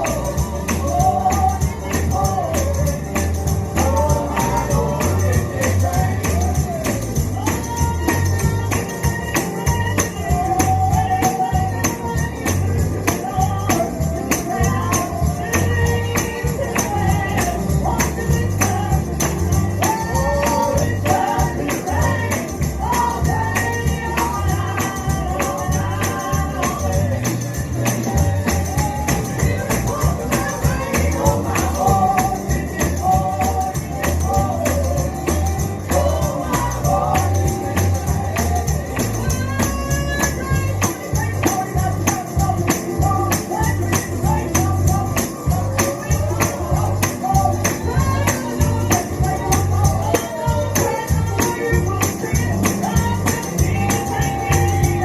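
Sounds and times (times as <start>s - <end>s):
person singing: 0.0s - 55.0s
tambourine shaking: 0.0s - 55.0s.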